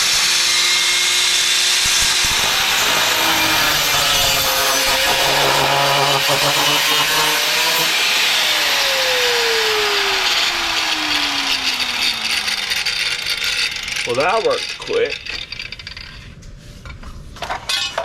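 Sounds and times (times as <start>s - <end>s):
saw motor winding down: 0.0s - 14.4s
power saw cutting wood: 0.0s - 15.4s.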